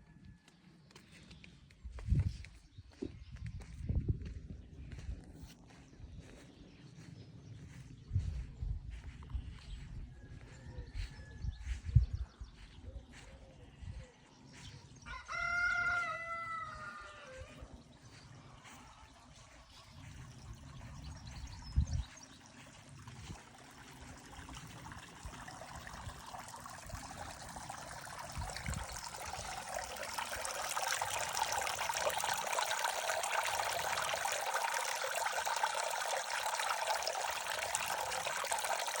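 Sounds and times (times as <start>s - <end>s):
water running and trickling: 18.0s - 39.0s.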